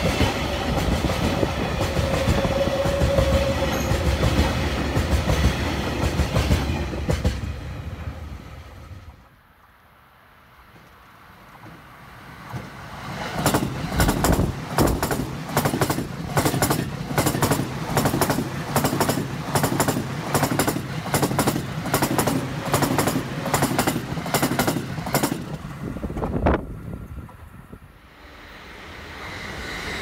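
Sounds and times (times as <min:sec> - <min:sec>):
train rumble: 0:00.0 - 0:09.4, 0:10.6 - 0:30.0
train wheels clacking over rail joints: 0:12.4 - 0:25.6.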